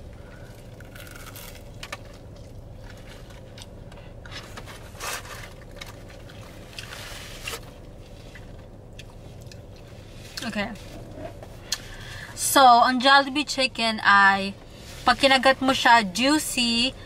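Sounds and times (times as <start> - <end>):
steady low hum: 0.0 - 17.0
crunchy chicken being chewed: 0.2 - 3.8.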